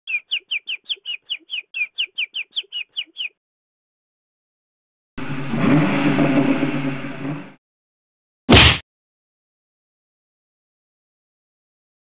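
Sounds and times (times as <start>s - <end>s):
bird chirping: 0.1s - 3.4s
rough noisy sound: 5.2s - 7.6s.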